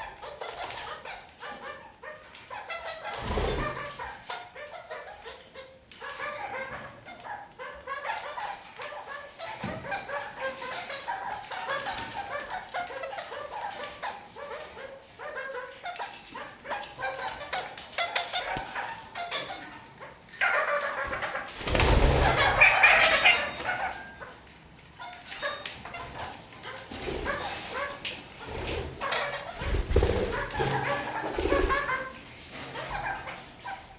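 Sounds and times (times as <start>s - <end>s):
parakeets chattering: 26.9s - 32.2s.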